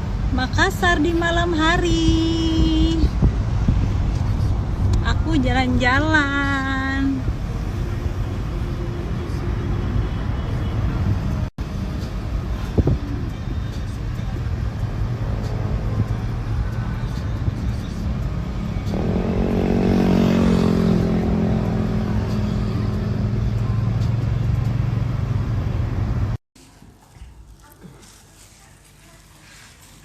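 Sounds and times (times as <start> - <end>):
traffic rumble: 0.0 - 30.0
loud engine note: 18.9 - 25.5.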